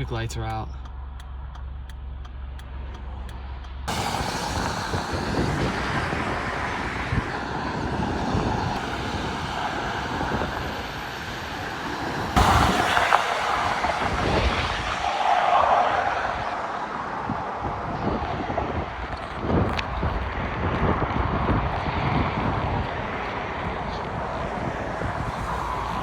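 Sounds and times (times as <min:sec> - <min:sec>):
faint evenly spaced ticking: 0:00.0 - 0:03.9
car road and traffic noise: 0:00.0 - 0:26.0
low hum: 0:00.0 - 0:26.0.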